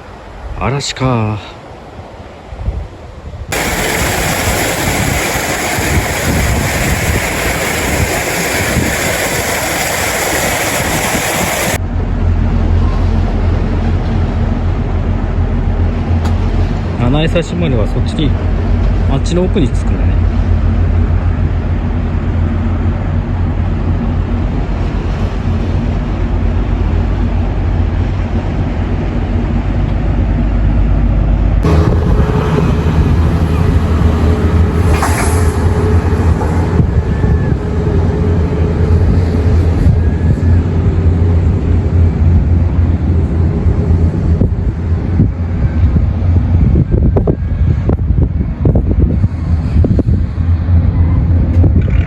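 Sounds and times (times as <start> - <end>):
wind noise: 1.7 - 52.0
vehicle engine running: 3.5 - 52.0
hiss: 3.6 - 11.8.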